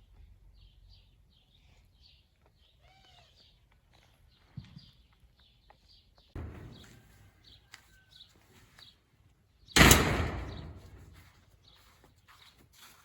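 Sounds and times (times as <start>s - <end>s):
bangs: 6.4s - 7.1s, 9.8s - 11.2s.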